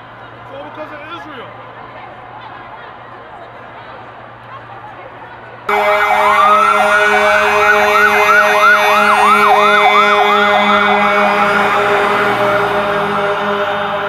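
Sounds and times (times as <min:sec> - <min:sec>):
emergency vehicle siren: 0:05.7 - 0:14.0.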